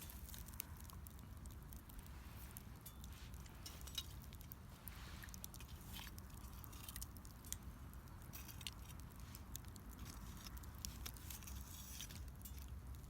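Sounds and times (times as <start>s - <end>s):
low steady rumble: 0.0s - 13.0s
wood fire crackling: 0.0s - 13.0s.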